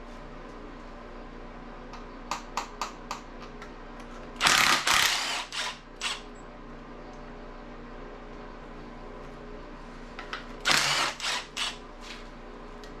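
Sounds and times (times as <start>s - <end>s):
loud rasping tool bursts: 4.4s - 6.2s, 10.6s - 11.8s.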